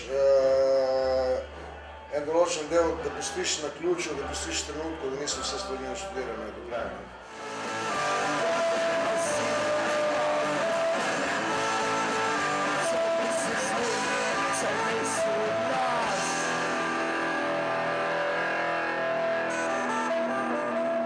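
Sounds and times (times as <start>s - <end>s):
rock music with bending guitar: 7.2s - 21.0s.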